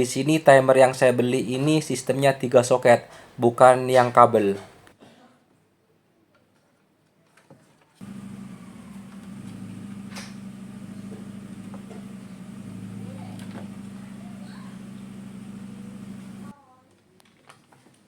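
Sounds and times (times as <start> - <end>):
faint clicks: 8.0 - 16.5.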